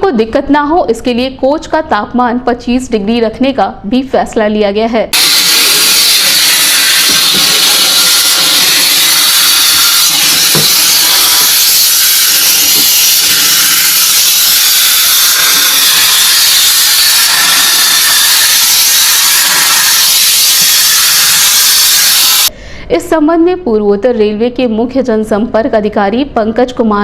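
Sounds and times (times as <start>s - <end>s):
loud steady hissing: 5.2s - 22.5s.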